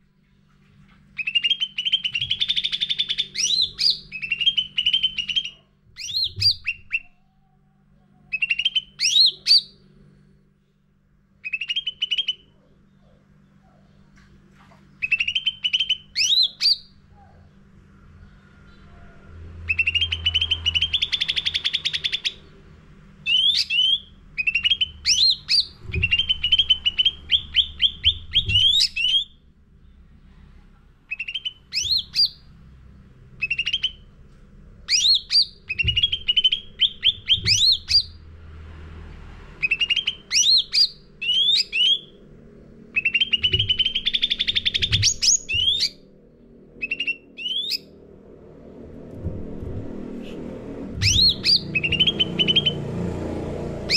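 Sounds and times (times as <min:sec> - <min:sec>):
songbird trilling and whistling: 0:01.2 - 0:07.2, 0:08.3 - 0:09.8, 0:11.4 - 0:13.2, 0:15.0 - 0:17.0, 0:19.6 - 0:22.5, 0:23.2 - 0:29.4, 0:31.1 - 0:32.5, 0:33.4 - 0:34.1, 0:34.9 - 0:38.2, 0:39.6 - 0:42.2, 0:42.9 - 0:46.1, 0:46.8 - 0:48.0, 0:51.0 - 0:52.8.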